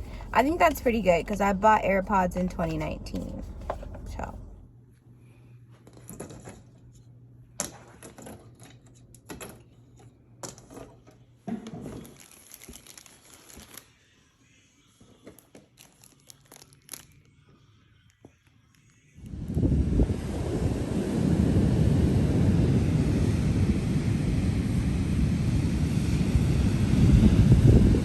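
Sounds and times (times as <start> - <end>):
packaging crinkling and tearing: 11.9 - 14.0, 15.4 - 17.4
wind noise on microphone: 19.3 - 28.0.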